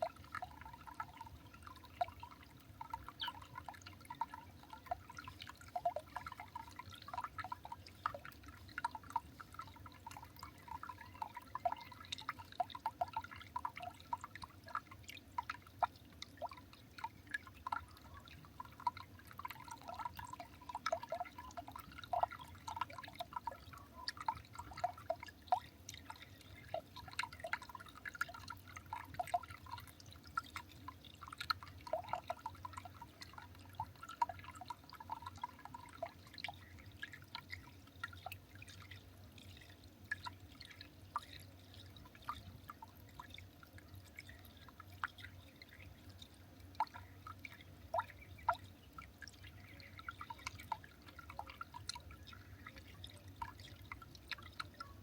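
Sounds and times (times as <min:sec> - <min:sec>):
faint dripping plinks: 0:00.0 - 0:55.0
low steady hum: 0:00.0 - 0:55.0.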